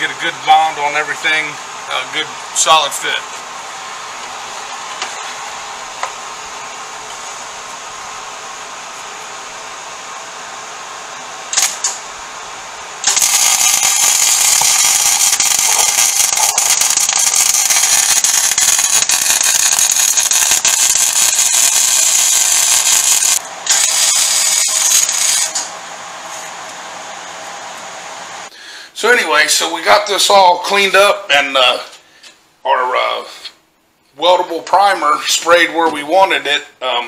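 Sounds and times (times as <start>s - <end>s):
welding arc crackling: 11.4s - 25.8s.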